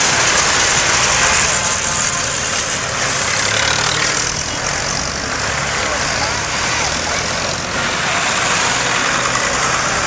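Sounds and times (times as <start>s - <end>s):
tractor engines running: 0.0s - 10.0s.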